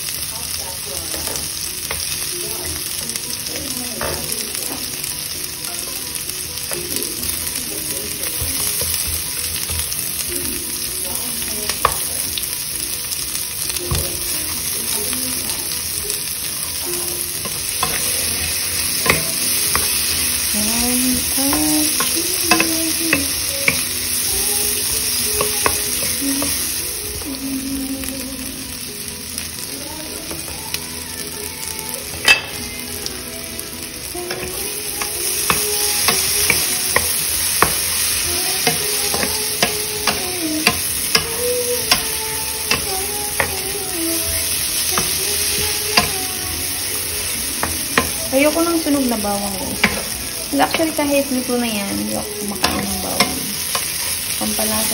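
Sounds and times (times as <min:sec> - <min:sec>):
food sizzling in a frying pan: 0:00.0 - 0:54.9
spatula tapping a pan: 0:11.7 - 0:12.1, 0:17.4 - 0:20.2, 0:21.4 - 0:26.6, 0:34.3 - 0:43.8, 0:44.9 - 0:46.3, 0:47.6 - 0:48.3, 0:49.7 - 0:51.0.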